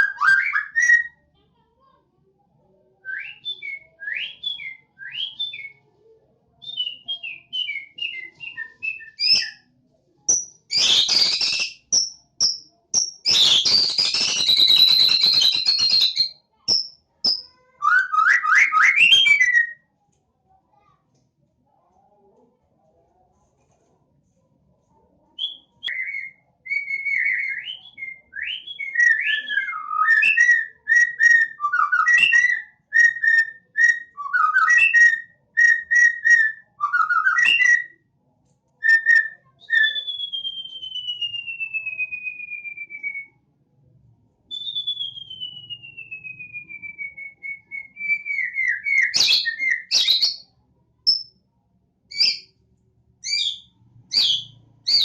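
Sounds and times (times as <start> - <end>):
songbird singing: 52.1 - 52.5, 53.2 - 55.0.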